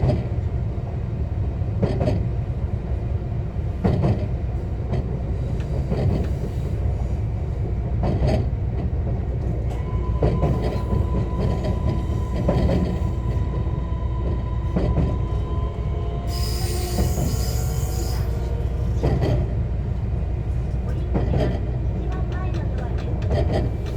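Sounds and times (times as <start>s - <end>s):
train interior low rumble: 0.0s - 23.9s
high-pitched squeal: 15.6s - 18.9s
wheels clacking over rail joints: 20.7s - 23.9s.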